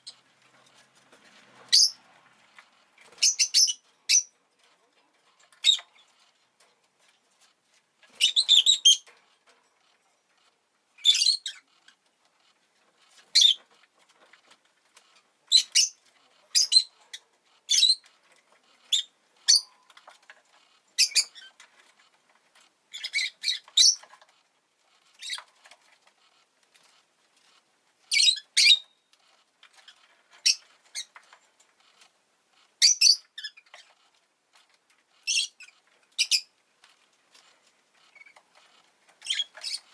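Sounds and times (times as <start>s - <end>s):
lovebird chirping: 1.7s - 2.0s, 3.2s - 4.3s, 8.2s - 9.0s, 11.0s - 11.6s, 13.3s - 13.6s, 15.5s - 17.0s, 17.7s - 18.0s, 18.8s - 19.8s, 21.0s - 21.5s, 22.9s - 24.0s, 28.1s - 29.0s, 32.8s - 33.7s, 35.2s - 36.5s, 39.2s - 39.9s.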